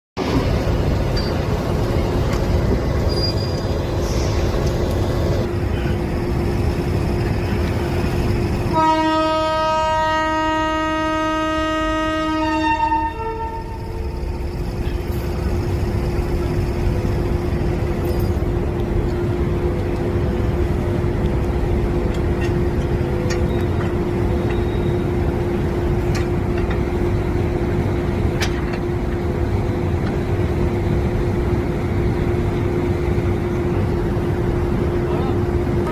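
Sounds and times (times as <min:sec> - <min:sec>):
train rumble and hum: 0:00.2 - 0:35.9
locomotive horn blast: 0:08.7 - 0:14.1.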